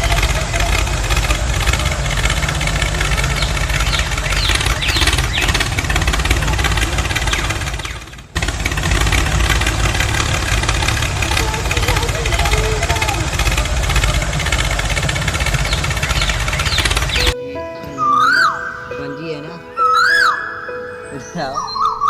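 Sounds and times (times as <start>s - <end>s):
small petrol engine chattering: 0.0s - 17.4s.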